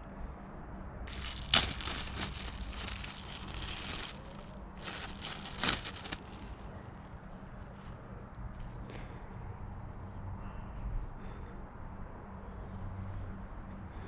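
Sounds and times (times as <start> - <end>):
packaging crinkling and rustling: 1.1 - 6.8.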